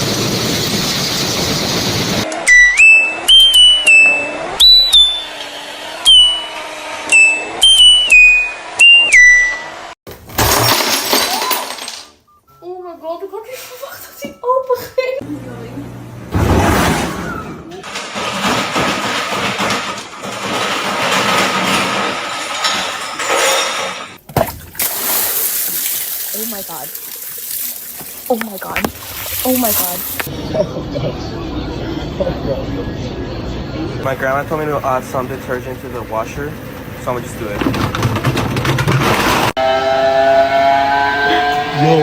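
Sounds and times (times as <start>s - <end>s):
electronic beeper tune: 2.4s - 5.4s, 6.1s - 9.8s
washing machine running: 17.8s - 30.7s, 34.0s - 39.5s.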